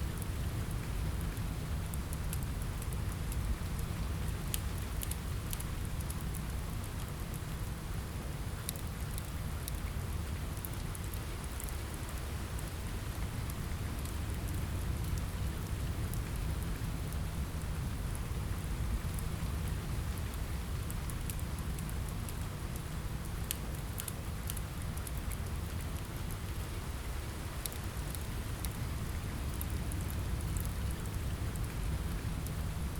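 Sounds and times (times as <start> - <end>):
rain falling: 0.1 - 32.9
wood fire crackling: 0.1 - 32.9.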